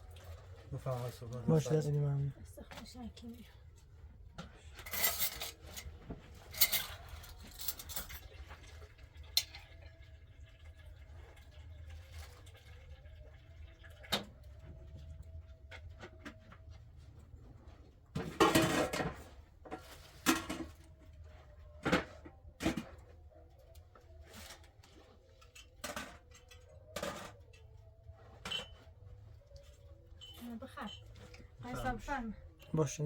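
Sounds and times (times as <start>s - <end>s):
dishes and utensils clinking: 4.4s - 10.0s, 18.2s - 20.9s, 25.3s - 31.9s
dishes clattering: 18.2s - 20.8s, 28.4s - 29.0s.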